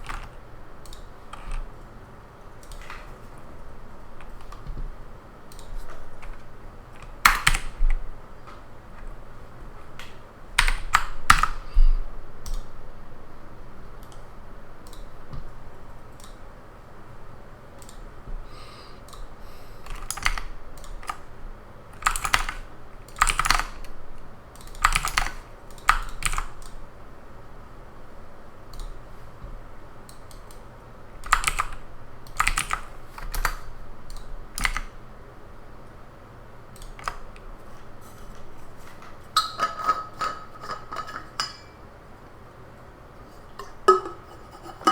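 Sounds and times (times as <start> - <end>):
computer keyboard typing: 0.0 - 4.9, 5.5 - 8.1, 10.0 - 11.6, 19.1 - 21.2, 21.9 - 23.9, 24.5 - 26.8, 31.2 - 35.0, 36.7 - 37.4.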